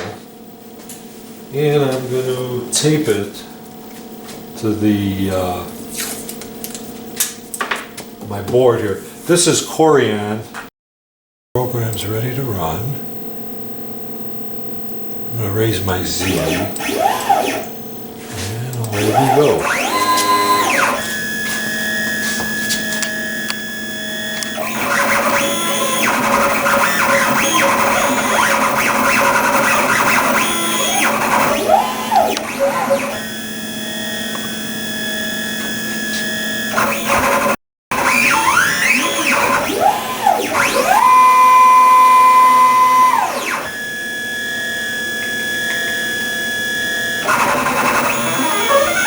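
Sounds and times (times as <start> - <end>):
stepper motors whining: 14.5 - 49.0.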